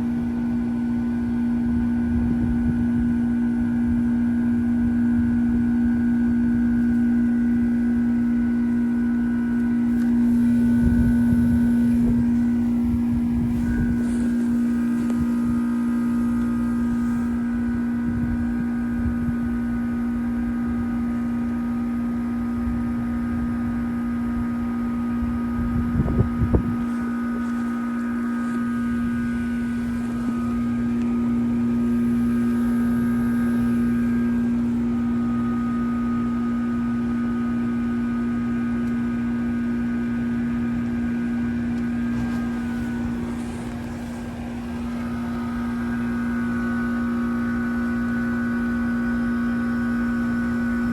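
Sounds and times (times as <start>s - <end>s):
heat pump humming: 0.0s - 50.9s
higher whining tones: 3.2s - 50.9s
short low rumbles: 9.8s - 19.6s.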